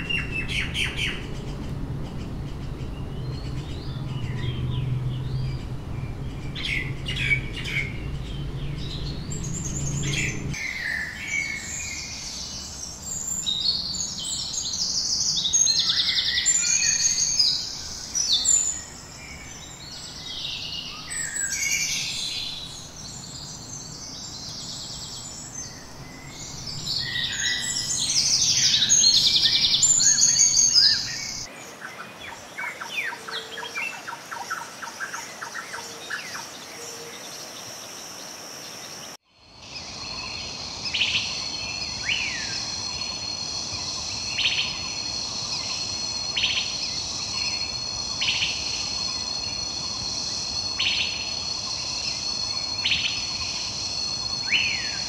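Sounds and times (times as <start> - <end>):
birds calling and chirping: 0.0 - 37.8
high insect chorus: 0.0 - 55.0.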